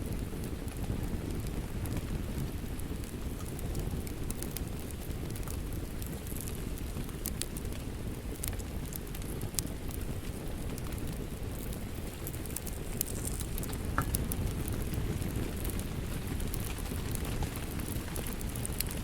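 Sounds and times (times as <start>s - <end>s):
low rumble of rain: 0.0s - 19.0s
wood fire crackling and popping: 0.0s - 19.0s.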